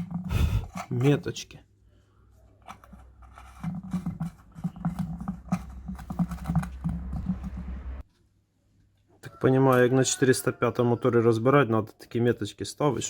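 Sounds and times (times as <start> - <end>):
plastic lid scraping: 0.0 - 1.1, 2.6 - 8.0
low hum: 6.6 - 8.1.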